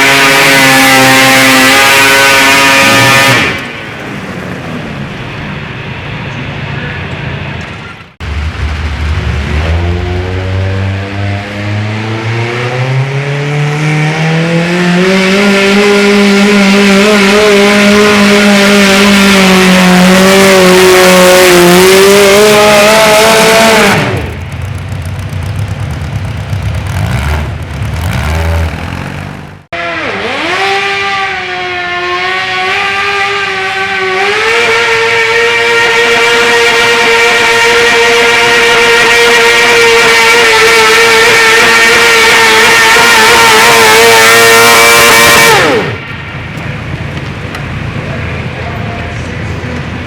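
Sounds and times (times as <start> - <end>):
garden tractor engine revving: 0.0 - 7.2, 9.2 - 31.1, 32.2 - 48.1.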